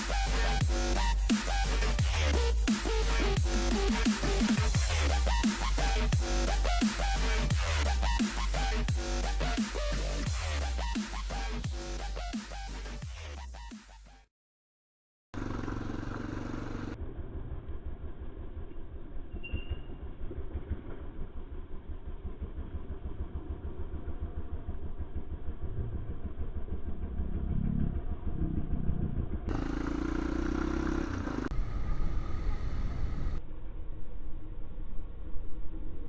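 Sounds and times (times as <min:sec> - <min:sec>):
motorcycle engine running: 0:15.4 - 0:19.2, 0:20.3 - 0:33.4.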